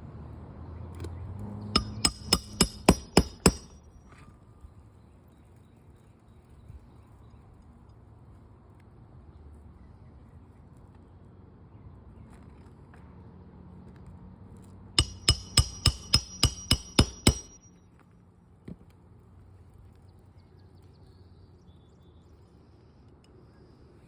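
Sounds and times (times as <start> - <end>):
hammer striking metal: 1.8 - 3.8, 15.0 - 17.7.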